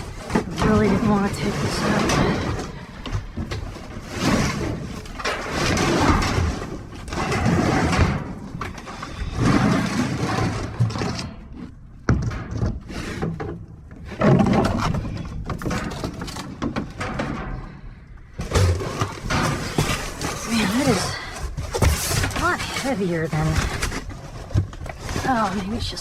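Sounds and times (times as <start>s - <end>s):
scrap clattering in a dumpster: 0.0s - 26.0s.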